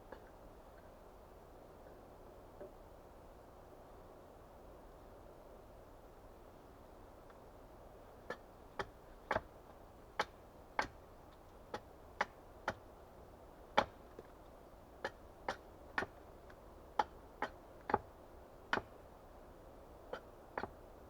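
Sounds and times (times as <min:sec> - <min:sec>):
axe striking wood: 0:08.3 - 0:09.5, 0:13.8 - 0:14.0, 0:18.7 - 0:18.9.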